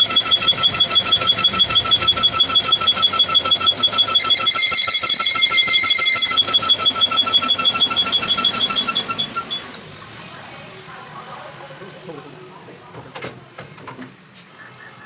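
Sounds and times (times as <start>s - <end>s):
steady electronic tone: 0.0s - 9.4s
rapid electronic beeping: 0.0s - 9.6s.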